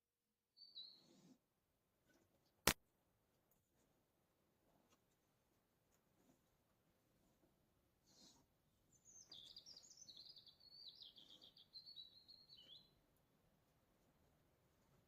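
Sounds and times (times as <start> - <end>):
songbird singing: 0.6 - 1.1, 8.9 - 13.1.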